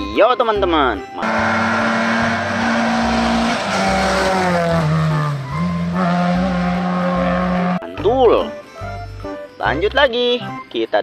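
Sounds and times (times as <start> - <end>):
car engine running: 1.1 - 7.9
background music with beat: 2.0 - 11.0.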